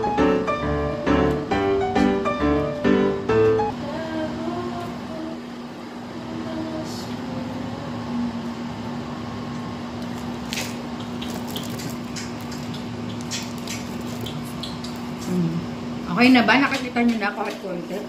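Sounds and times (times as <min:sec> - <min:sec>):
steady low hum: 0:00.0 - 0:18.0
wet chewing and lip-smacking: 0:09.6 - 0:15.6
sharp mouth clicks: 0:10.5 - 0:15.6.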